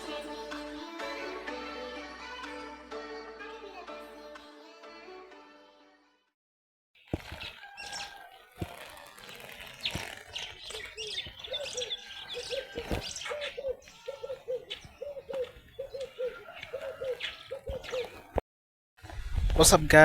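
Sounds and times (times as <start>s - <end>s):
high bird chirps: 9.8s - 18.3s.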